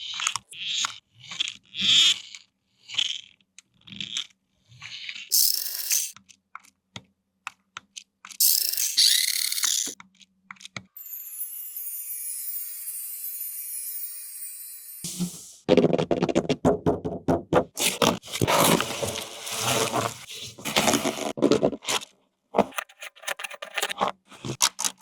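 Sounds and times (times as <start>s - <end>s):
small electric gear motor whirring: 5.3s - 6.2s, 8.4s - 10.0s, 11.0s - 15.1s
plastic parts crinkling and clicking: 17.8s - 25.0s.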